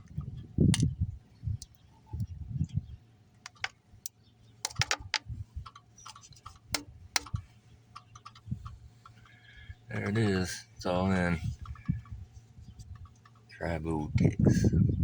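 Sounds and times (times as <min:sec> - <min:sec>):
faint low hum: 0:00.0 - 0:15.0
container clicks and taps: 0:03.4 - 0:03.8, 0:04.6 - 0:07.4.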